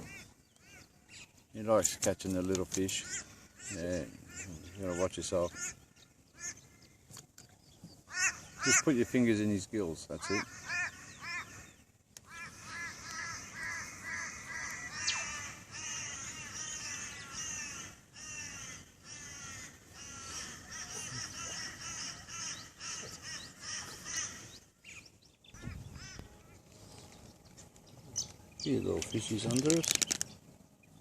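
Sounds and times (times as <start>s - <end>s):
birds calling: 0.0s - 31.0s.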